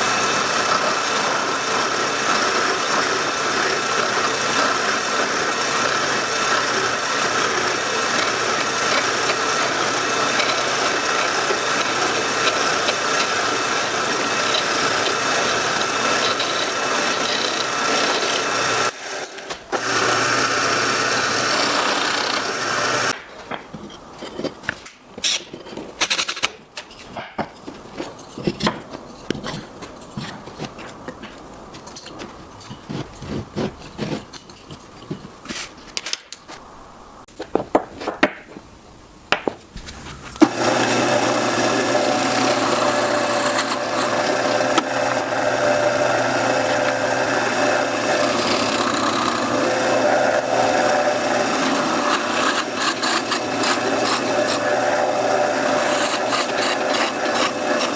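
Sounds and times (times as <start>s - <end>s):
power tool cutting wood: 0.0s - 23.6s, 39.8s - 57.9s
wood and tools clicking: 0.6s - 36.6s, 37.3s - 38.7s, 39.3s - 57.9s.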